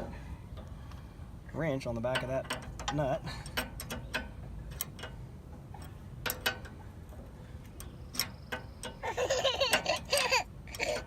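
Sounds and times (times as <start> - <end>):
wrench clicking on metal: 2.1 - 6.8, 7.8 - 11.0.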